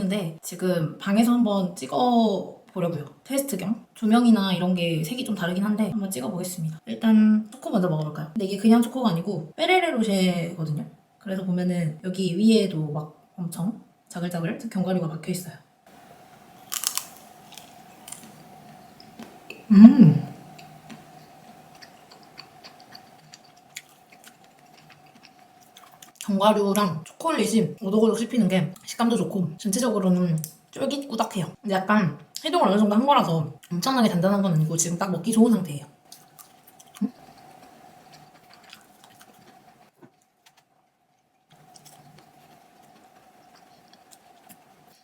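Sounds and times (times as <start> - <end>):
faint steady hum: 0.0 - 45.0
chewing crunchy bar: 16.5 - 19.5, 20.6 - 26.3, 36.1 - 44.7
mouth sound: 19.1 - 21.3.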